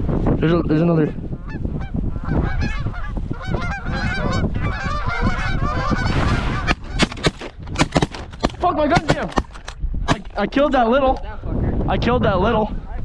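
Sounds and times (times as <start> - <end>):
wind rumble on microphone: 0.0 - 13.0
geese honking: 1.4 - 7.1
sharp cracks: 6.7 - 10.4.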